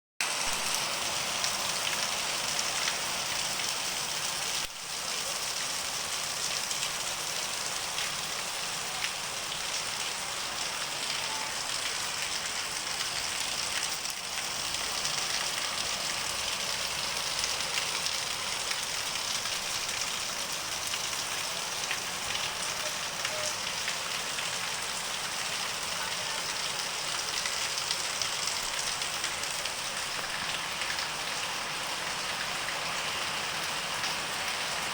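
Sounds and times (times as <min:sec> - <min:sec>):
heavy rain pouring: 0:00.2 - 0:34.9
raindrops ticking on hard surfaces: 0:00.2 - 0:34.9.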